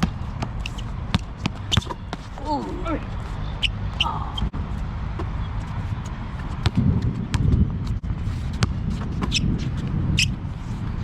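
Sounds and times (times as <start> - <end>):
basketball bouncing: 0.0 - 2.2, 6.5 - 7.7, 8.6 - 9.4.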